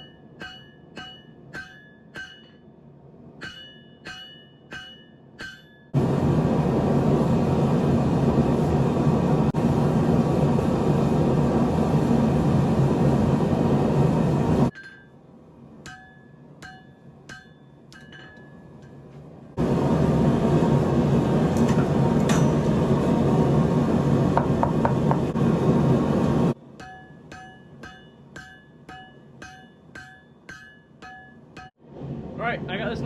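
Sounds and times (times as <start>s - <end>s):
hammer striking steel on anvil: 0.0s - 6.0s, 14.7s - 15.2s, 15.8s - 19.1s, 21.7s - 22.7s, 26.7s - 31.8s.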